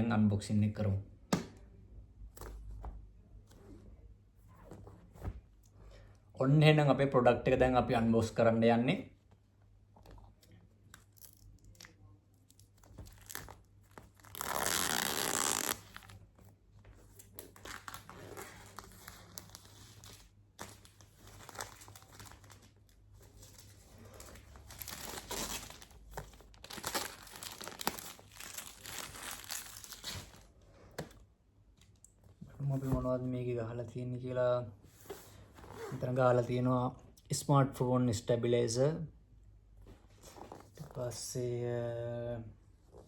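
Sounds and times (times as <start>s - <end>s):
packaging crinkling: 12.5s - 16.2s, 24.1s - 30.5s
packaging tearing: 24.7s - 30.4s.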